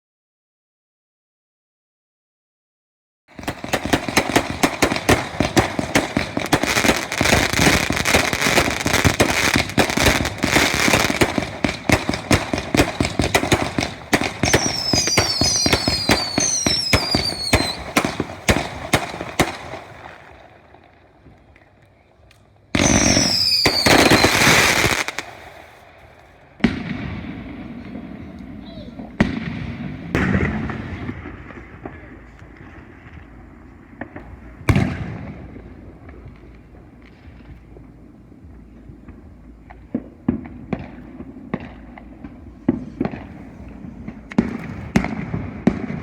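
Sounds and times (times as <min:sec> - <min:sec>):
fireworks crackling and popping: 0:03.3 - 0:46.0
firework bang: 0:03.4 - 0:20.4, 0:26.6 - 0:37.8, 0:39.2 - 0:46.0
loud firework burst: 0:03.4 - 0:20.5, 0:22.8 - 0:25.9, 0:26.6 - 0:37.8
falling firework whistles: 0:12.8 - 0:19.9, 0:22.8 - 0:25.8.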